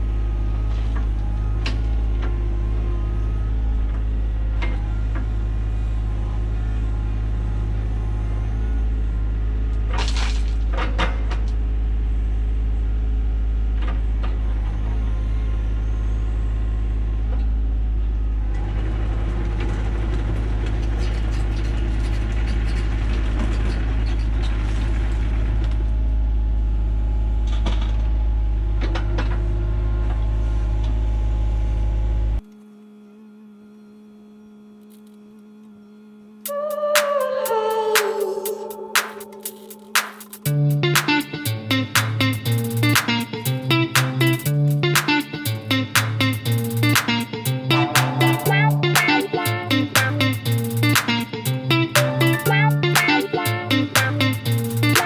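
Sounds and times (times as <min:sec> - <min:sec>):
short sharp sounds: 0:36.5 - 0:55.0
excavator diesel engine running: 0:38.7 - 0:55.0.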